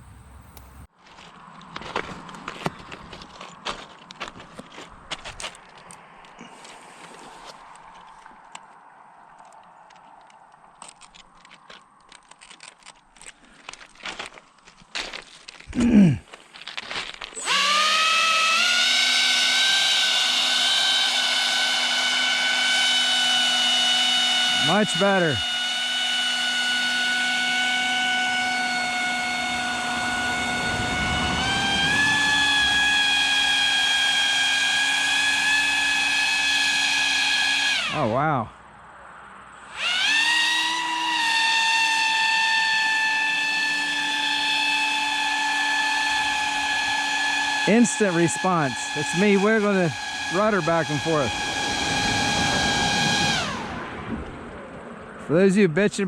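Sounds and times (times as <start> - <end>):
high-pitched electric motor whine: 17.4 - 38.2, 39.6 - 54.1.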